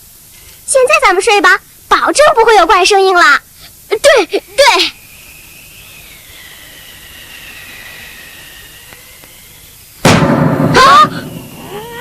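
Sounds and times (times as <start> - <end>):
soft hiss: 0.0 - 12.0
wavering high whistle: 4.0 - 10.0, 10.7 - 12.0.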